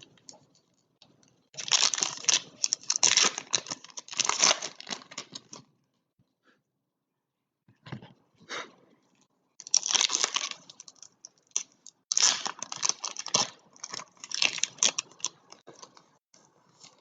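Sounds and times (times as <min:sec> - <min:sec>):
card wrappers crinkling and tearing: 0:01.6 - 0:05.6, 0:09.6 - 0:16.1.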